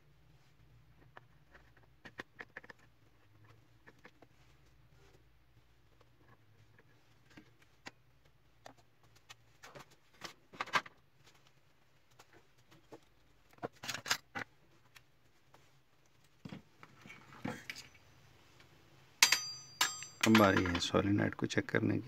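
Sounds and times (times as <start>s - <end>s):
plastic parts clicking and knocking: 12.7s - 15.0s, 19.2s - 21.0s
plastic parts clattering: 19.8s - 21.0s.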